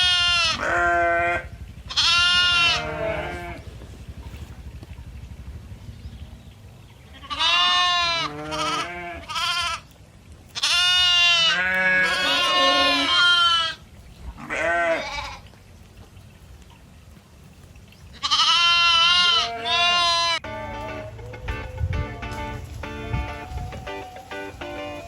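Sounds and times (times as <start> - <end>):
goats bleating: 0.0 - 3.8, 7.1 - 9.9, 10.5 - 13.8, 14.4 - 15.5, 18.1 - 21.4.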